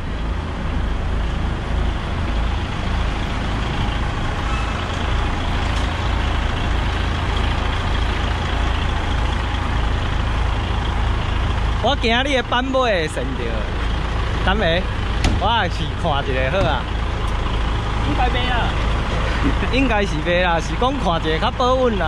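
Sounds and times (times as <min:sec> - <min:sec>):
diesel truck engine rumbling: 0:00.0 - 0:22.0.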